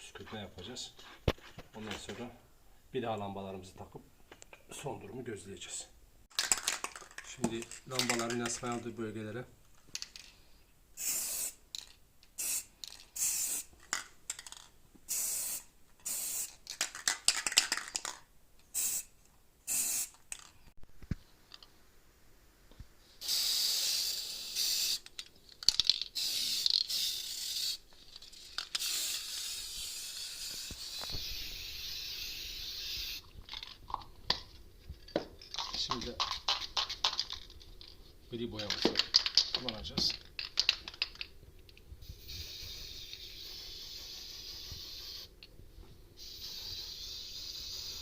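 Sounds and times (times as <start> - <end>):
aerosol spray can hissing: 11.0 - 11.6, 12.4 - 13.7, 15.1 - 16.6, 18.7 - 19.1, 19.7 - 20.2, 23.2 - 25.1, 26.1 - 27.8, 28.4 - 33.3, 42.1 - 45.3, 46.2 - 48.0.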